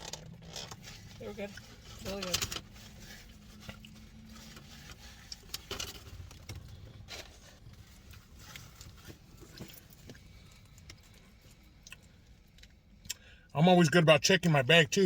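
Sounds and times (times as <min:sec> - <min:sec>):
chewing: 0:07.3 - 0:13.3.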